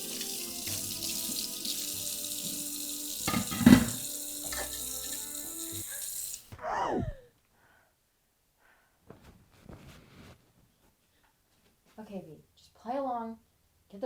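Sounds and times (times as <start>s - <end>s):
rushing noise like running water: 0.0s - 6.6s.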